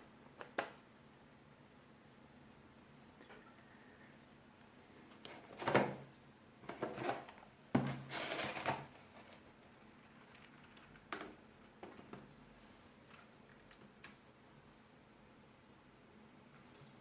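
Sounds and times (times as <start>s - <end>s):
rustling and clatter of handling: 5.0s - 12.4s.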